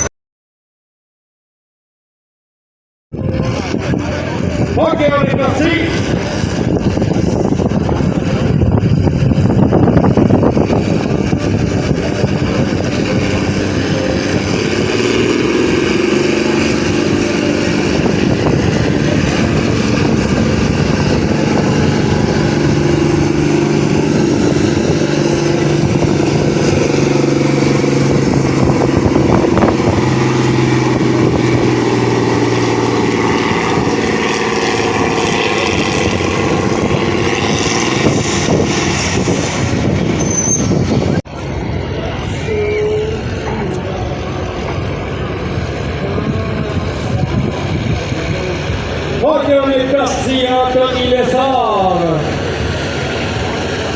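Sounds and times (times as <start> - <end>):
tractor engine under heavy load: 3.2 - 53.9.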